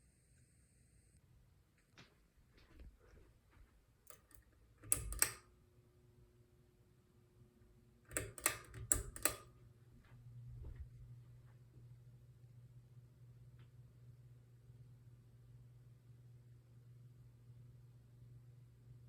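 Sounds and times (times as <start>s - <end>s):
faint steady hum: 0.0s - 19.0s
fan switch clicks: 4.1s - 5.5s, 8.1s - 9.5s
low fan motor hum: 7.2s - 19.0s.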